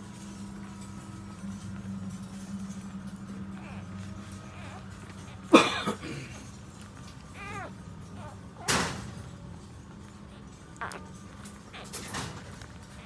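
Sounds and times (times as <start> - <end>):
steady low hum: 0.0 - 13.0
puppy whining: 2.1 - 13.0
puppies squealing: 3.2 - 5.7, 6.4 - 13.0.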